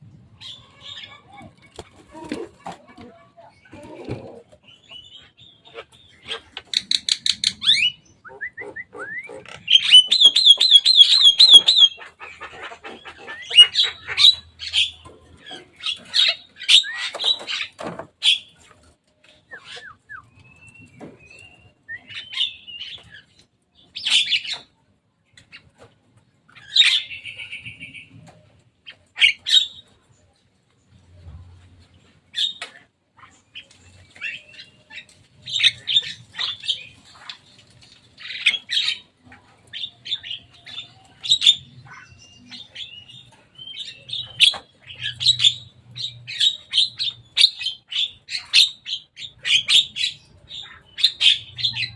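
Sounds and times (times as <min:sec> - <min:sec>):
bird harsh calls and squawks: 0:00.1 - 0:18.8, 0:19.4 - 0:24.8, 0:26.5 - 0:30.2, 0:31.1 - 0:51.9.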